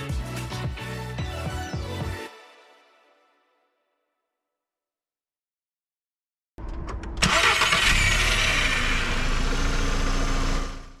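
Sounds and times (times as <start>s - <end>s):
engine starter cranking: 6.6s - 9.7s
car engine idling: 6.6s - 11.0s.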